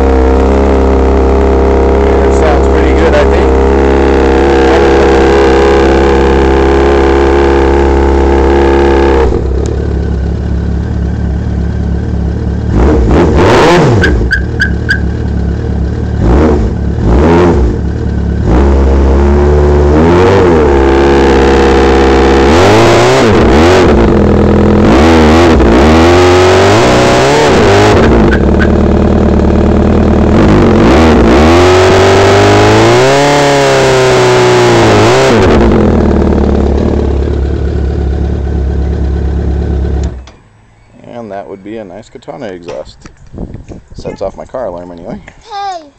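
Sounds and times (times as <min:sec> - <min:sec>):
motorcycle engine revving: 0:00.0 - 0:40.4.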